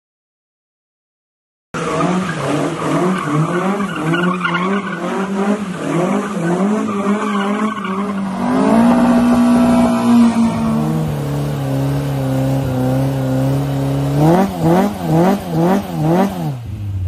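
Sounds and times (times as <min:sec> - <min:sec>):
car engine revving: 0:01.8 - 0:17.0
tyre squeal: 0:01.9 - 0:11.4.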